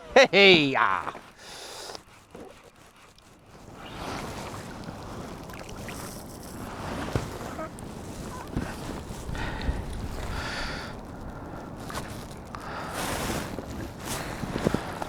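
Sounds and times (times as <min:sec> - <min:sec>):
water sloshing against kayak hull: 0:00.0 - 0:15.0
wind on microphone: 0:03.6 - 0:15.0.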